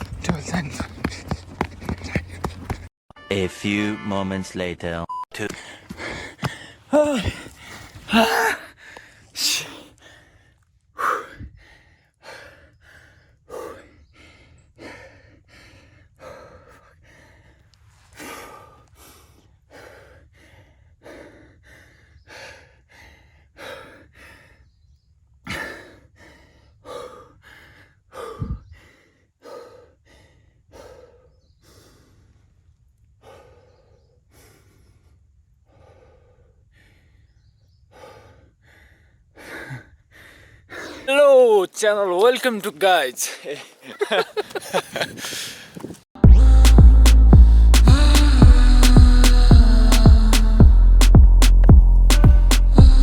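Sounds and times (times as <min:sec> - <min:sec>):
person panting: 0:00.0 - 0:02.9, 0:05.5 - 0:24.8, 0:25.4 - 0:41.1, 0:43.2 - 0:46.0.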